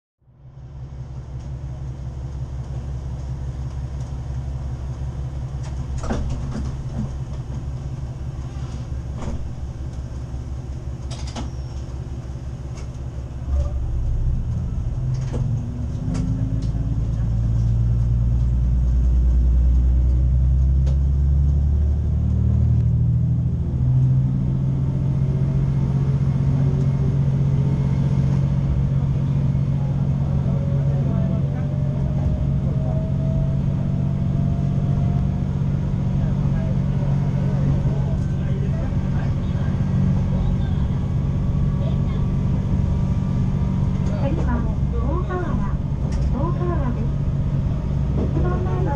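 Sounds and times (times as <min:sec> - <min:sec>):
diesel railcar engine rumbling: 0:00.2 - 0:48.9.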